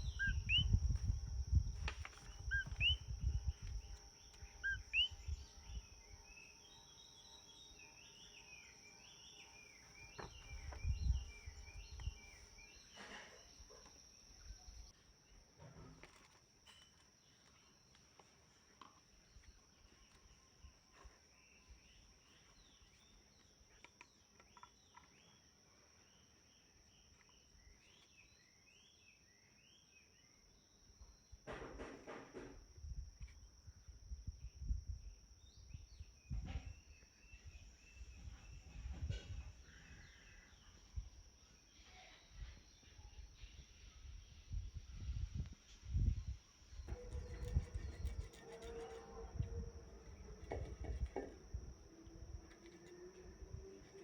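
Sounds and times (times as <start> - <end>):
small birds chirping: 0.0 - 15.5, 16.7 - 31.4, 35.4 - 54.0
high insect drone: 0.0 - 18.0, 43.4 - 54.0.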